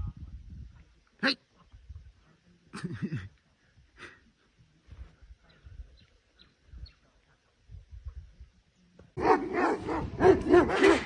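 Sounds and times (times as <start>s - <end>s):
dog barking: 9.2s - 11.0s.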